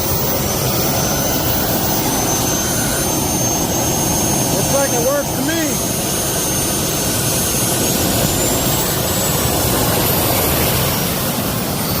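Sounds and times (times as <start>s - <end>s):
jet engine roaring: 0.0s - 12.0s.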